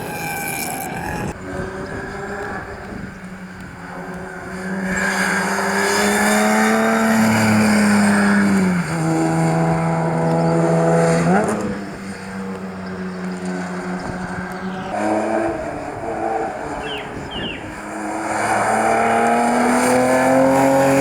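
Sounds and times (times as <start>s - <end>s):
rally car engine running hard: 0.0s - 21.0s.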